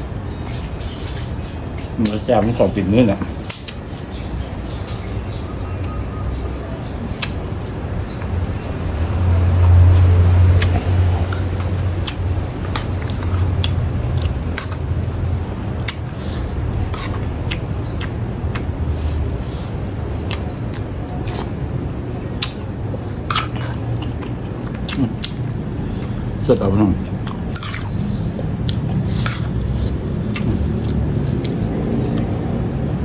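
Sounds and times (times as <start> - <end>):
chewing with wet mouth clicks: 3.2 - 3.8, 7.1 - 18.9, 19.6 - 26.4, 27.0 - 32.6.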